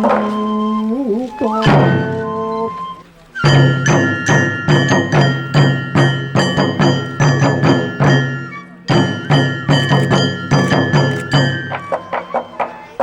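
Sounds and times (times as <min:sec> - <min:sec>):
metal percussion ringing: 0:00.0 - 0:13.0
drum beating fast: 0:03.4 - 0:13.0.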